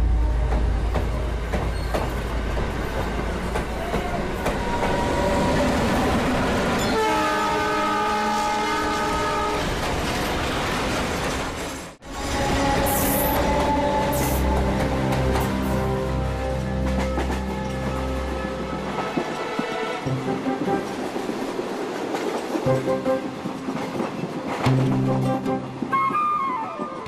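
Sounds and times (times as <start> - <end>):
train wheels clattering on rails: 0.4 - 7.0, 16.6 - 27.0
train horn blast: 6.8 - 9.8, 12.1 - 21.0.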